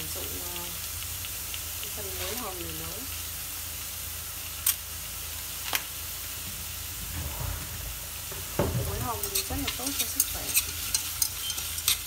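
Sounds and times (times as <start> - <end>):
food sizzling in a pot: 0.0 - 12.0
soft knocks: 6.5 - 9.7.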